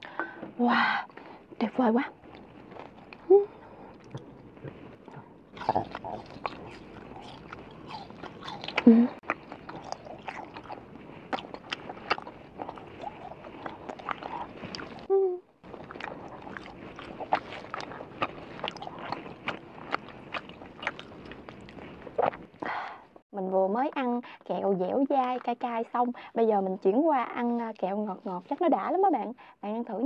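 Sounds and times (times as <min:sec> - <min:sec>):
wet chewing mouth clicks: 0:02.2 - 0:23.0
person humming: 0:08.8 - 0:09.2, 0:15.1 - 0:15.4.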